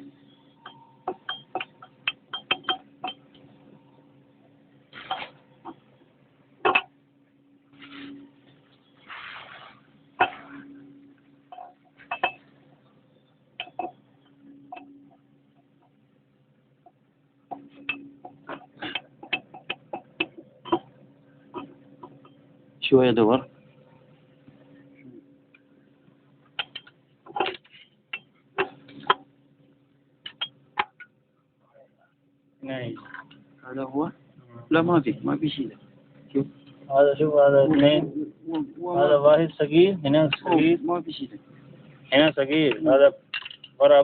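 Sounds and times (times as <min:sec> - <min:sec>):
steady low hum: 0:00.0 - 0:44.0
metal parts clicking and knocking: 0:00.6 - 0:03.5, 0:06.6 - 0:06.9, 0:13.6 - 0:14.0, 0:26.6 - 0:29.2, 0:43.3 - 0:43.8
metal tools knocking and clinking: 0:00.6 - 0:03.6, 0:06.6 - 0:07.0, 0:11.5 - 0:12.5, 0:13.6 - 0:15.2, 0:17.5 - 0:22.4, 0:26.6 - 0:29.2, 0:30.2 - 0:31.1, 0:42.7 - 0:43.8
noisy rustle: 0:07.7 - 0:10.7.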